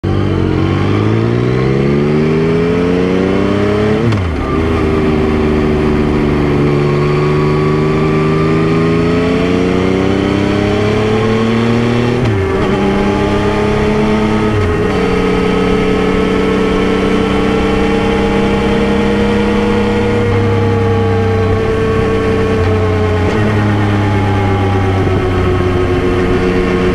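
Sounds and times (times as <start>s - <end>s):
motorcycle engine accelerating: 0.0s - 26.9s.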